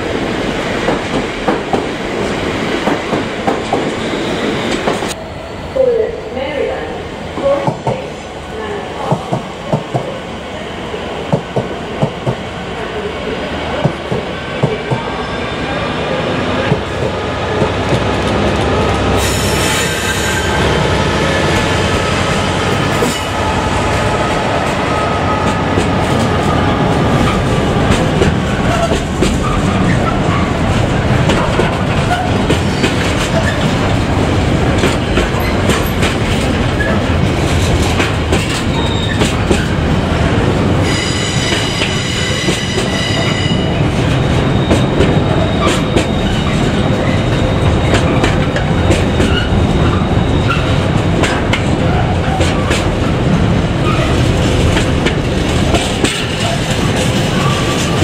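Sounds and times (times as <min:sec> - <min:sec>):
train rumbling on rails: 0:00.0 - 0:58.0
high-pitched wheel squeal: 0:40.8 - 0:48.0
wheels clacking over rail joints: 0:44.0 - 0:58.0.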